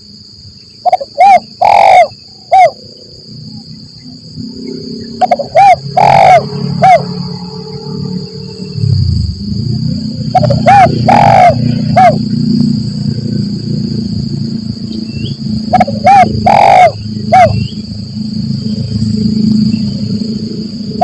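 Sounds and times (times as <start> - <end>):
steady high whine: 0.0 - 21.0
dove cooing: 0.8 - 2.8, 5.1 - 7.2, 10.3 - 12.3, 15.7 - 17.7
low rumble: 6.4 - 11.1.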